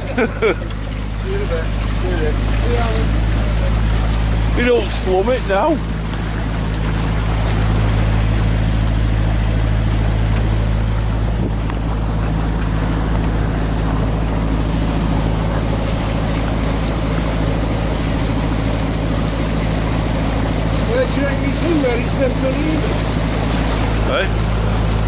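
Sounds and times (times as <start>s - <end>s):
motorboat engine running: 0.0s - 25.0s
water noise: 0.0s - 25.0s
wind noise: 10.5s - 16.2s.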